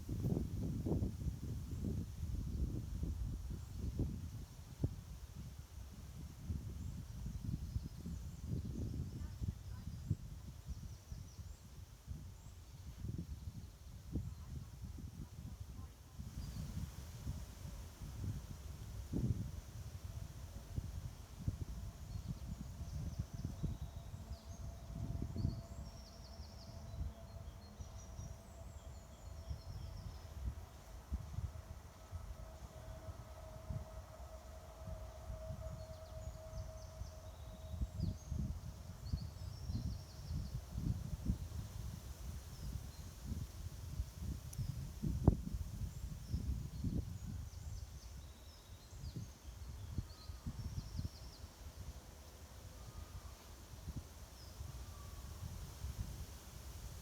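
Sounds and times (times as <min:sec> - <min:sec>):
wind rumbling on microphone: 0:00.0 - 0:57.0
faint bird chirps and trills: 0:21.9 - 0:41.4, 0:45.7 - 0:55.5.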